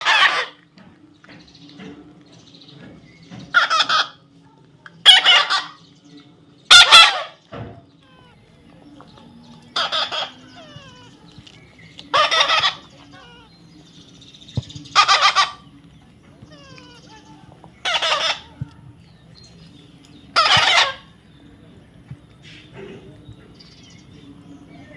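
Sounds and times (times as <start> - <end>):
baby parrot squawking: 3.5 - 4.2, 5.1 - 5.8, 6.7 - 7.4, 8.0 - 8.6, 9.7 - 13.6, 14.9 - 15.6, 16.4 - 18.6, 20.3 - 21.1.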